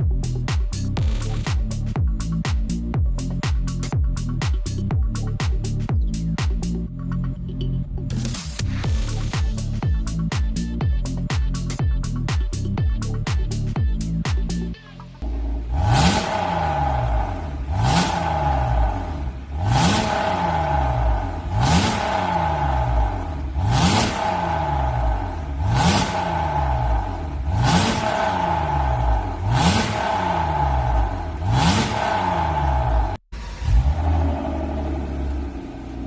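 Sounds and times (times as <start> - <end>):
car engine revving: 15.2 - 36.0.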